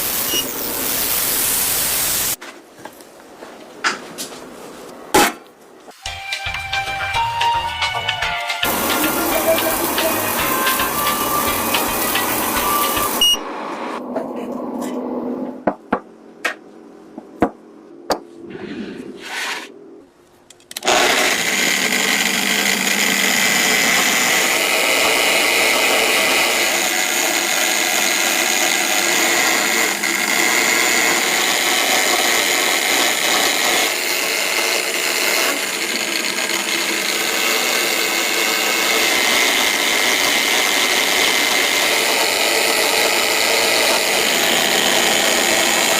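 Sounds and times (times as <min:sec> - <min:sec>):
electric power tool whirring: 0:08.6 - 0:13.4, 0:20.7 - 0:45.9.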